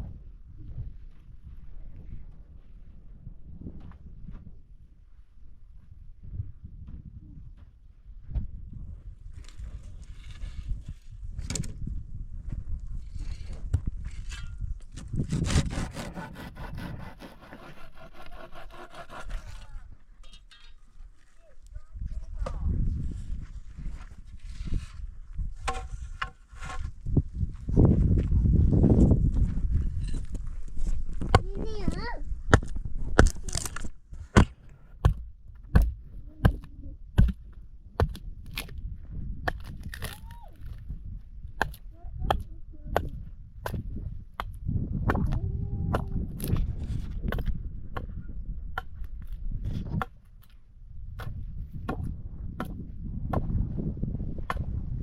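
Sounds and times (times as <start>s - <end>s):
saw cutting wood: 15.2s - 19.8s.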